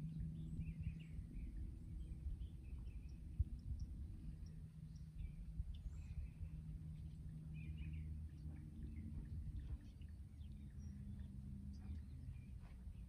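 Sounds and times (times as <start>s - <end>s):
low steady background rumble: 0.0s - 13.0s.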